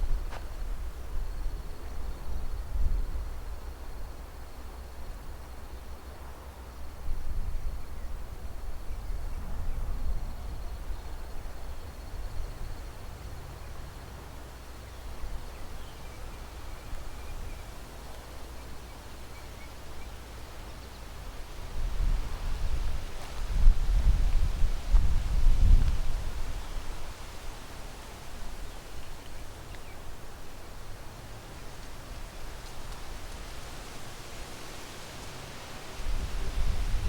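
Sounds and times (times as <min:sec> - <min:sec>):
wind gusting on microphone: 0:21.5 - 0:27.8, 0:34.5 - 0:37.0.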